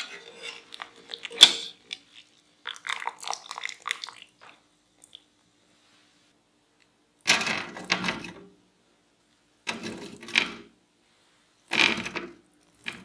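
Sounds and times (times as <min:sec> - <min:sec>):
food preparation clattering: 0:00.0 - 0:02.0.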